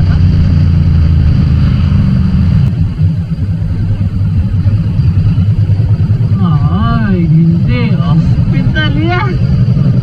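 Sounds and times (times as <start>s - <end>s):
motorcycle engine drone: 0.0s - 10.0s.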